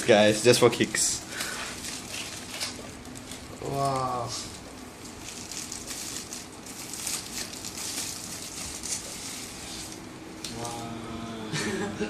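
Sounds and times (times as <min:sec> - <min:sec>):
packaging rustling and crinkling: 0:01.3 - 0:10.0.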